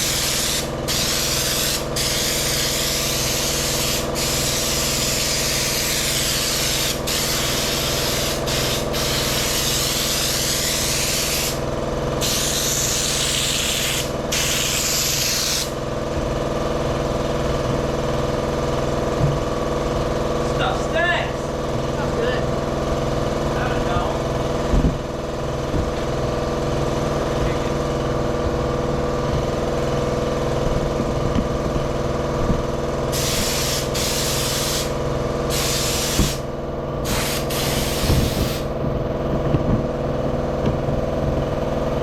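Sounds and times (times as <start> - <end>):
air spray gun hissing: 0.0 - 15.8, 33.1 - 38.8
steady machine hum: 0.0 - 42.0.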